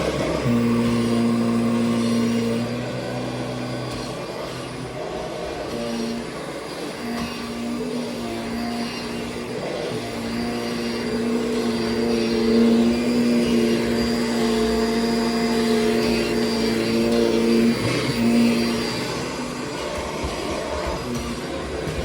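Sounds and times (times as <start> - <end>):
vacuum cleaner motor hum: 0.0 - 22.0.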